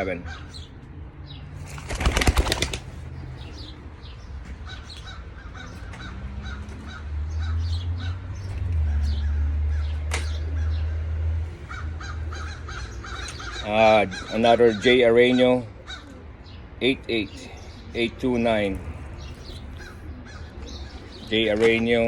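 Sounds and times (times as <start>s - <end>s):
birds calling: 0.0s - 22.0s.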